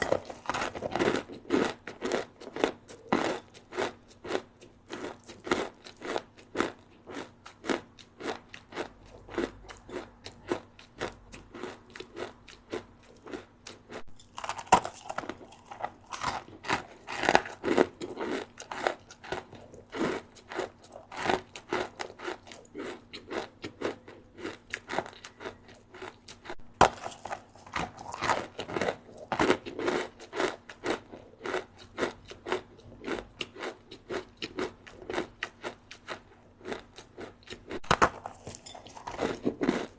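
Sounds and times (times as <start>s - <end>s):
chewing crunchy snack: 0.0s - 39.9s.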